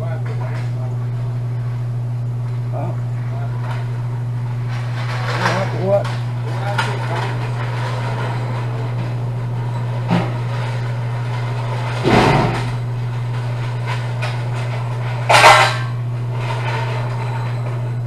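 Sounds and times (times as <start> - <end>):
low hum: 0.0 - 18.0
metal clanks: 4.7 - 18.0.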